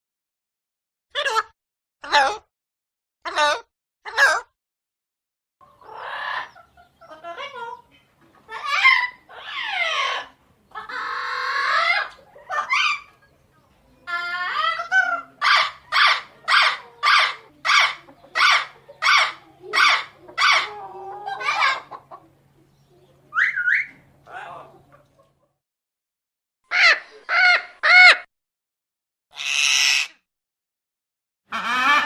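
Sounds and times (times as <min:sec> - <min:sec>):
parrot calling: 0:05.8 - 0:07.8, 0:08.5 - 0:13.2, 0:14.0 - 0:22.0, 0:23.3 - 0:24.7, 0:26.7 - 0:28.3, 0:29.3 - 0:30.2, 0:31.5 - 0:32.0.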